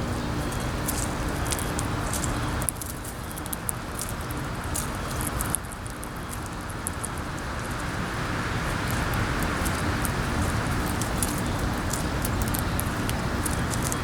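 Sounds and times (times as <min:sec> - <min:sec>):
wind blowing across microphone: 0:03.7 - 0:14.0.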